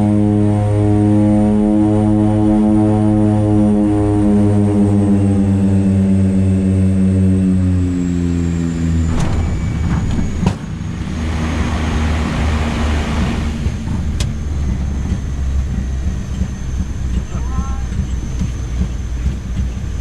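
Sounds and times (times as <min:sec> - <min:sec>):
low engine drone: 0:00.0 - 0:20.0
rush of noise: 0:09.2 - 0:14.7.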